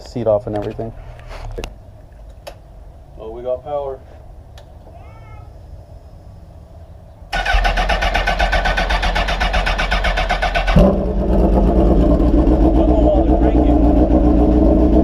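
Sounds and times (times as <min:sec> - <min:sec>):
starter motor cranking: 0:07.3 - 0:10.9
motorcycle engine running: 0:07.4 - 0:15.0.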